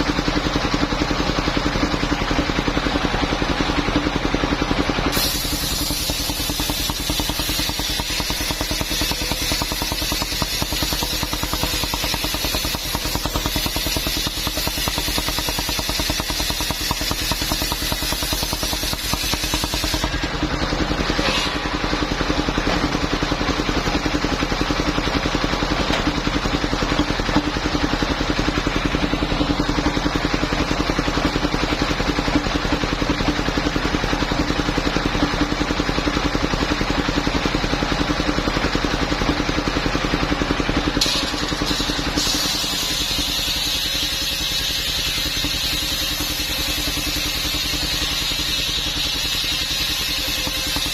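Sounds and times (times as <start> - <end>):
sawmill engine running: 0.0 - 50.9
saw blade hissing through wood: 5.1 - 20.2, 21.2 - 21.8, 41.0 - 50.9.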